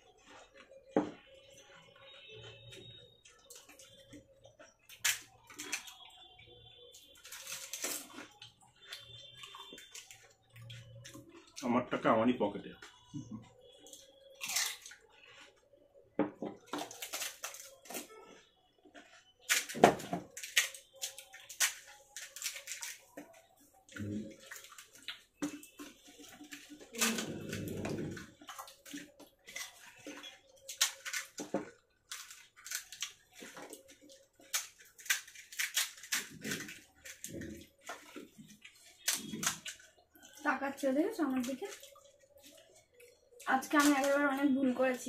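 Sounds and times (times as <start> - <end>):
crisp shells crunching: 7.2 - 11.6, 14.0 - 15.5, 19.0 - 23.4, 24.4 - 40.3
wet slurping: 27.0 - 28.9.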